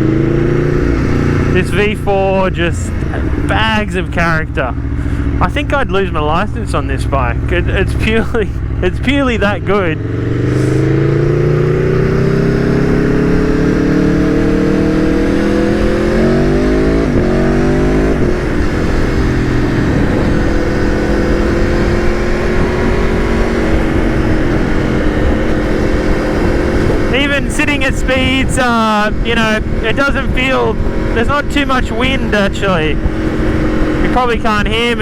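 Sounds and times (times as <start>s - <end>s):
motorcycle engine accelerating: 0.0s - 35.0s
wind rush: 0.0s - 35.0s.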